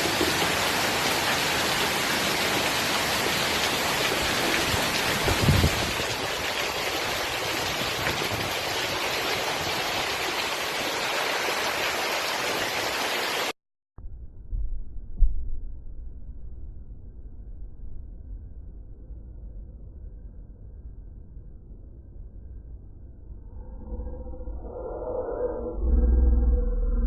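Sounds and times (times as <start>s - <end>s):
rushing flood water: 0.0s - 13.6s.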